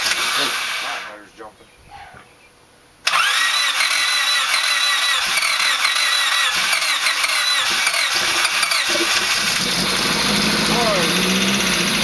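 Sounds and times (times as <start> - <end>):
car engine high idle: 8.2 - 12.0.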